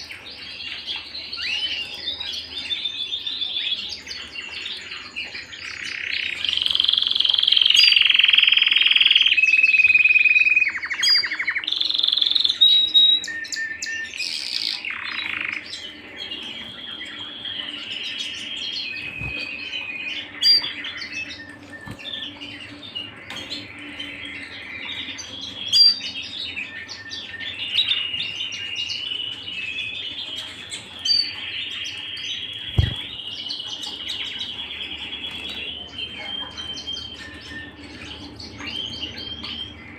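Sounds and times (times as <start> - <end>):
canary singing whistles and trills: 0.0 - 39.9
short low thump: 32.7 - 33.1.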